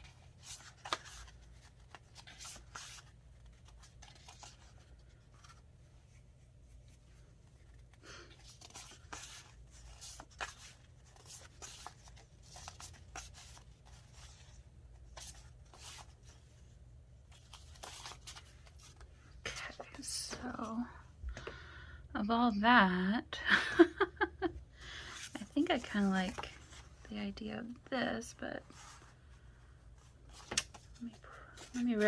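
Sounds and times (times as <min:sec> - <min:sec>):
paper rustling and scraping: 0:00.0 - 0:16.4, 0:17.3 - 0:19.1, 0:25.2 - 0:27.0, 0:30.1 - 0:32.0.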